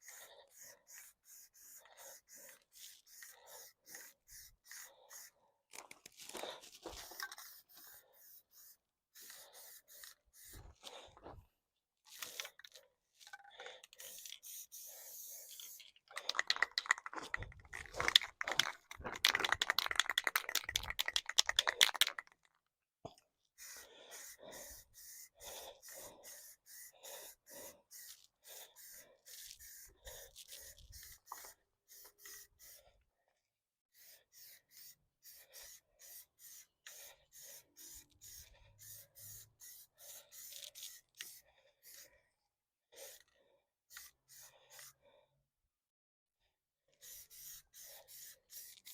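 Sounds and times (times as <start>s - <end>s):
aerosol can spraying: 0.0s - 5.3s, 6.9s - 10.8s, 13.9s - 15.9s, 23.6s - 32.8s, 33.9s - 42.0s, 43.9s - 45.0s, 47.0s - 48.9s
spray can mixing ball rattling: 6.9s - 10.6s, 13.9s - 22.4s, 38.9s - 42.0s, 47.0s - 48.9s.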